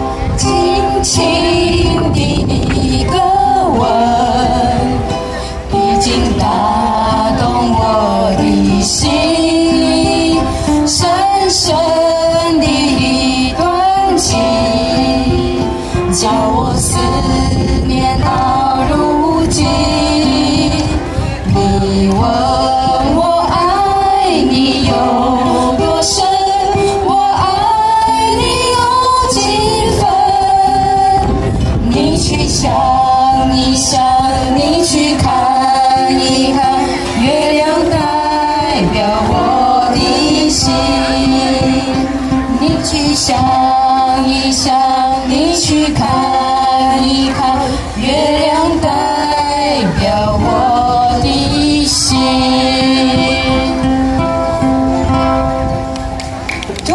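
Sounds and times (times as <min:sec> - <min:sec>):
women singing: 0:00.0 - 0:55.6
ukulele: 0:00.0 - 0:56.9.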